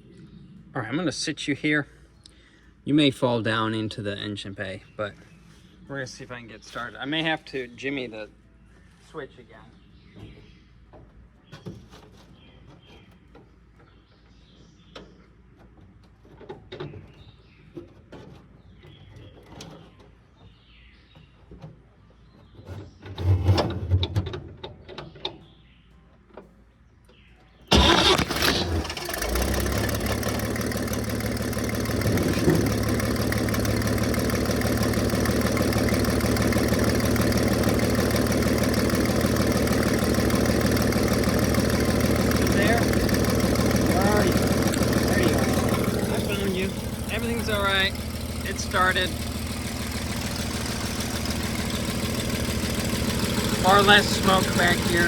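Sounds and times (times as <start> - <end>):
truck engine starting and idling: 27.7 - 55.0.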